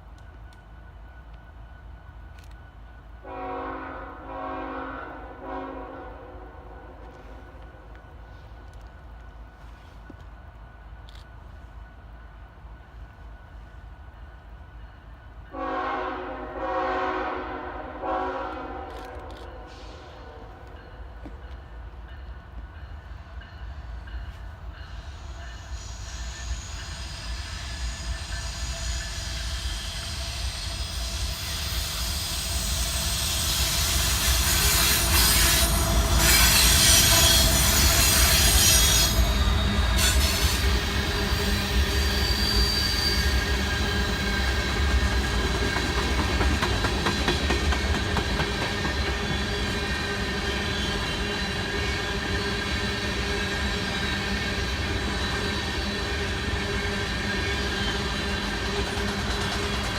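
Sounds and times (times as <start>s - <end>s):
train rumble: 0.0s - 59.9s
train wheels squealing: 19.7s - 59.9s.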